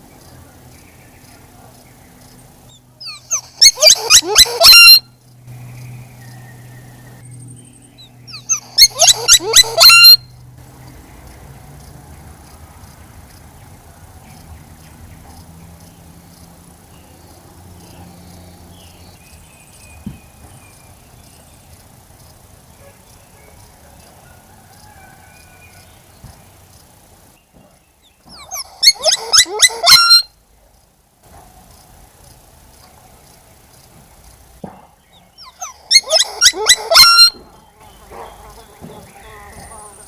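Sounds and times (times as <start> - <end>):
faint bird chirps: 0.2 - 10.4
quick high-pitched animal calls: 3.0 - 5.2, 8.3 - 10.3, 28.3 - 30.4, 35.4 - 37.5.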